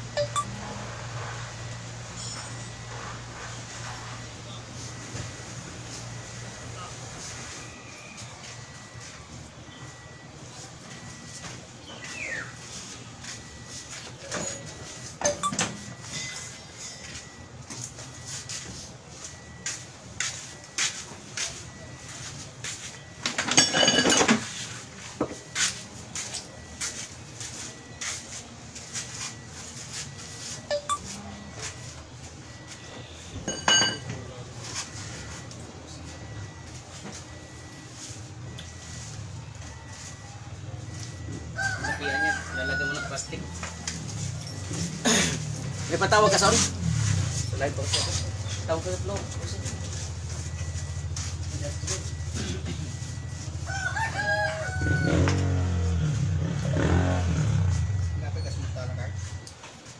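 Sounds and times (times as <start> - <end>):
loud ringing metallic clink: 33.5 - 34.1
metal tools clinking: 33.5 - 34.1
rooster crowing: 41.5 - 43.6, 53.6 - 56.0.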